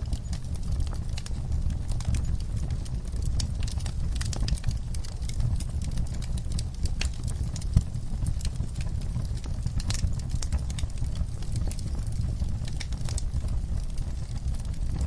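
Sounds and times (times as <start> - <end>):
bonfire crackling: 0.0 - 15.0.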